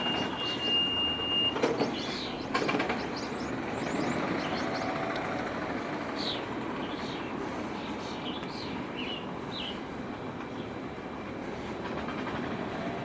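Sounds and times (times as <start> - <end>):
outdoor ambient hum: 0.0 - 13.0
small birds chirping: 1.8 - 5.3, 6.1 - 9.9.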